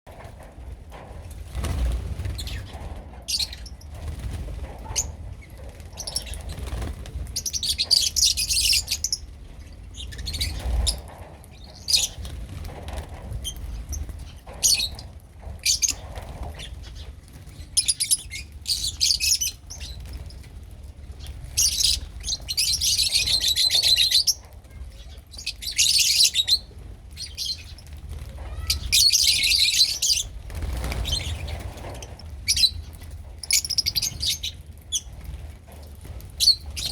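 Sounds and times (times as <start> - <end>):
lovebirds chirping: 21.2 - 35.1.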